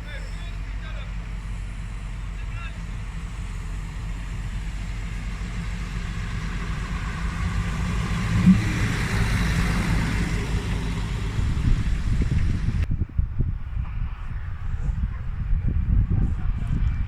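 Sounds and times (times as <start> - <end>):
rushing noise: 0.0 - 12.9
diesel train engine humming: 0.0 - 17.0.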